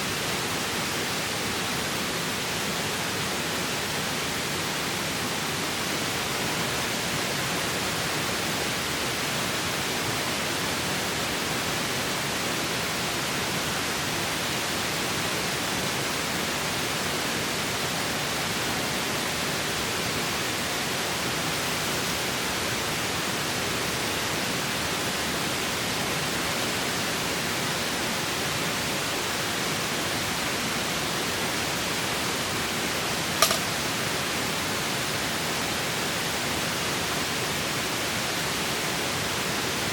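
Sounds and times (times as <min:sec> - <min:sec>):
sharp click: 0:33.4 - 0:33.8.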